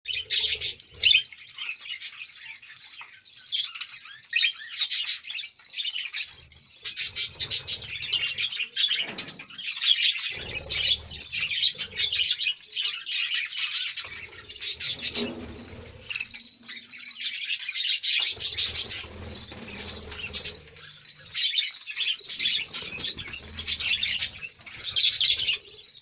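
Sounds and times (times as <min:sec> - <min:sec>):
budgerigars chirping and chattering: 0:00.1 - 0:26.0
wings fluttering: 0:06.4 - 0:09.6, 0:10.2 - 0:12.5, 0:13.8 - 0:17.0, 0:18.1 - 0:26.0.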